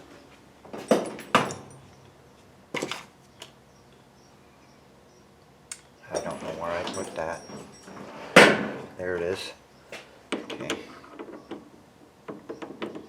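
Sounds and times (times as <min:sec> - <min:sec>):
loud metal clunks: 0:00.8 - 0:02.0, 0:08.3 - 0:09.0
rummaging among tools: 0:02.7 - 0:03.5, 0:06.1 - 0:09.4.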